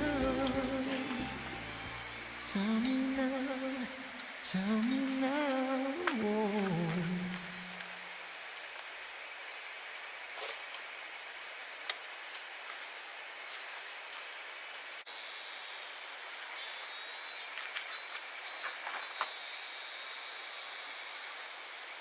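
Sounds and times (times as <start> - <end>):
faint hiss: 0.0 - 15.1
insects chirping chorus: 0.0 - 22.0.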